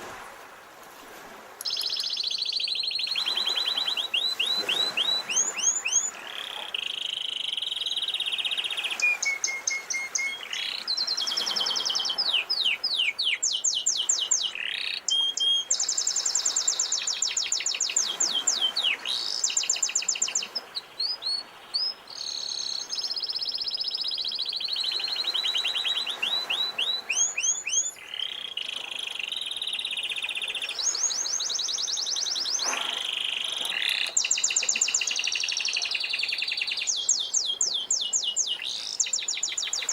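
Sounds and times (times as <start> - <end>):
faint sea waves: 0.0 - 39.9
canary singing trills: 1.6 - 39.9.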